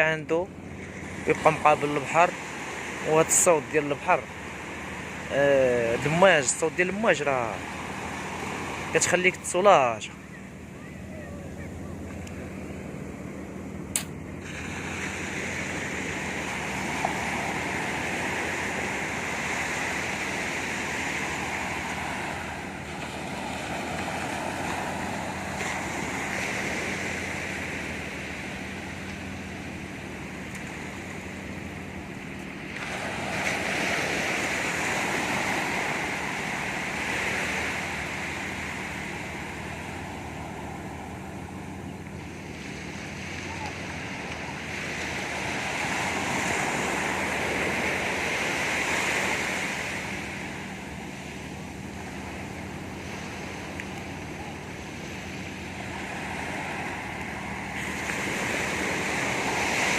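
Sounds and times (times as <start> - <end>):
sea waves breaking on beach: 0.0 - 59.9
sharp click: 13.9 - 14.2.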